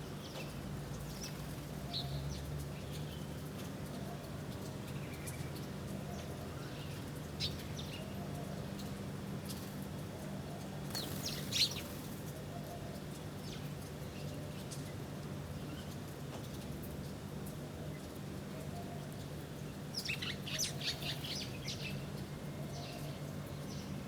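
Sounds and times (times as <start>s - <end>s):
small birds chirping: 10.9s - 12.2s, 19.9s - 22.0s.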